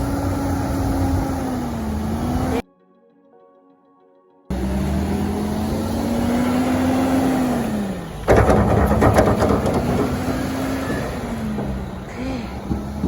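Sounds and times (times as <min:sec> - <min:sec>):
engine running: 0:00.0 - 0:02.6, 0:04.5 - 0:13.0
loud rough noise: 0:04.5 - 0:13.0.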